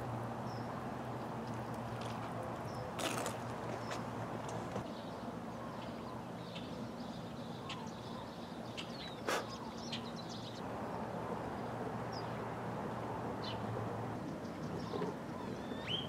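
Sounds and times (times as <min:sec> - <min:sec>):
birds chirping: 0:02.6 - 0:12.6, 0:13.3 - 0:16.0.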